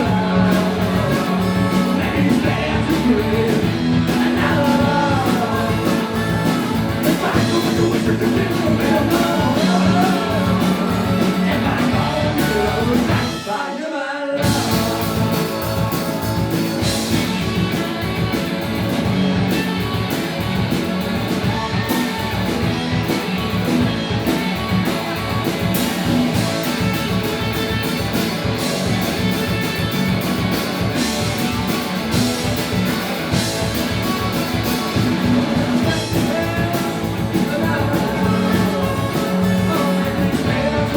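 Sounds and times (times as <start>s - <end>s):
live rock band playing: 0.0s - 13.8s, 14.4s - 40.9s
person singing: 0.0s - 17.4s, 35.4s - 40.9s.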